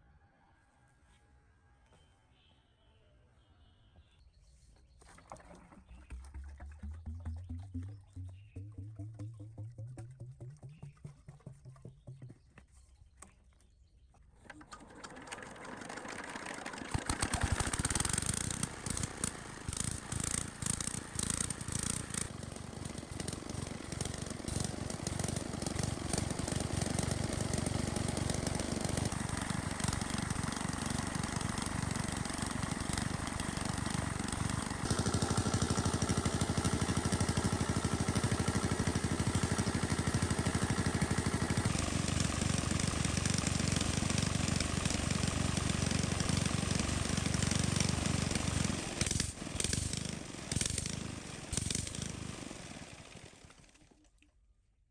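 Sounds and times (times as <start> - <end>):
water pump engine running: 5.2 - 12.4, 14.4 - 53.8.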